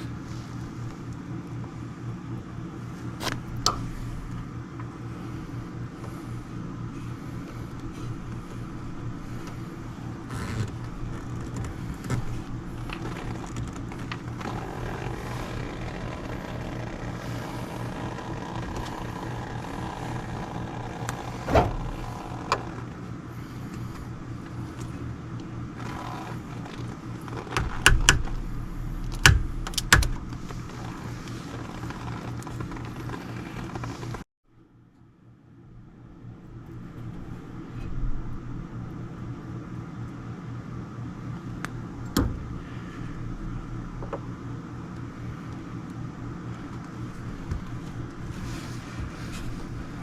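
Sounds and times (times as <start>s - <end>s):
low mechanical hum: 0.0s - 50.0s
knocks and clacks of handwork: 27.5s - 28.4s.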